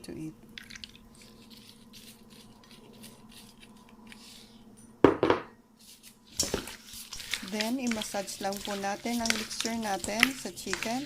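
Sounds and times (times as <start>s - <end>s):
dish knocking loudly: 5.0s - 5.5s.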